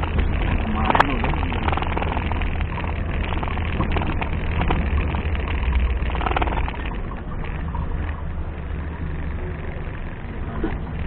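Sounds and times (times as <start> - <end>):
engine running with low rumble: 0.0 - 11.0.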